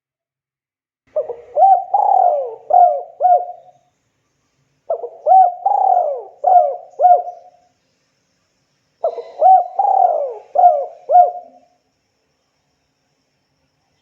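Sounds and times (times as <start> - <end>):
dove cooing: 1.1 - 3.7, 4.9 - 7.6, 9.0 - 11.7.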